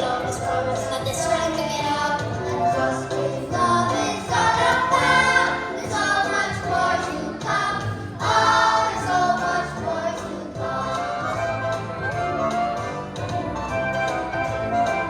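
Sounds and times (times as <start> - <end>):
choir singing: 0.0 - 1.7, 2.4 - 11.7
instrumental accompaniment: 0.0 - 15.0.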